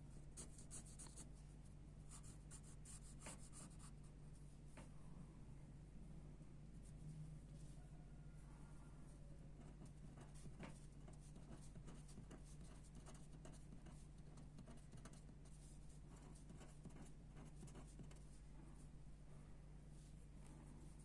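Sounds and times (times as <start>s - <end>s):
steady low hum: 0.0s - 21.0s
pencil scratching on paper: 0.4s - 1.2s, 2.1s - 3.9s, 9.6s - 18.3s.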